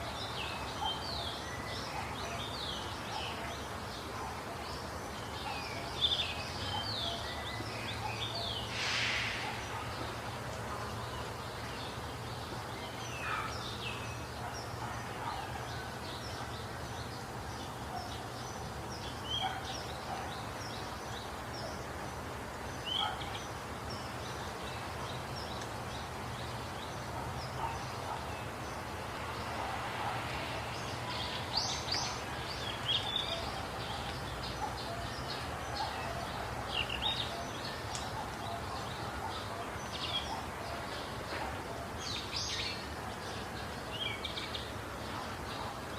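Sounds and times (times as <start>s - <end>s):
birds chirping and calling: 11.1s - 45.9s.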